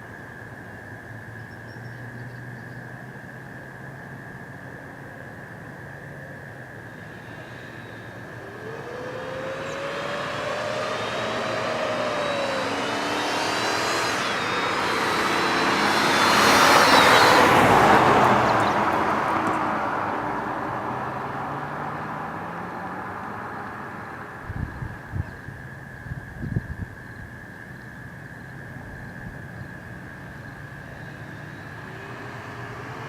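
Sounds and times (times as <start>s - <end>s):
car engine driving past: 6.8s - 24.4s, 29.7s - 33.0s.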